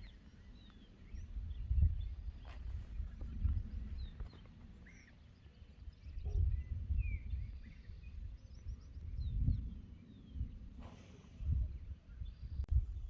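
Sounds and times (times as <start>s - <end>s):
wild birds chirping: 0.0s - 13.0s
wind rumble on microphone: 0.0s - 13.0s.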